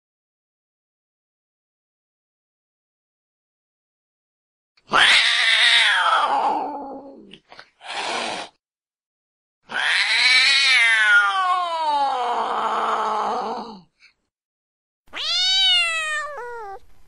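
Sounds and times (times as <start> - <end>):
cat yowling angrily: 4.8 - 7.3, 9.7 - 13.9, 15.1 - 16.8
cat hissing: 7.8 - 8.6, 15.2 - 16.8.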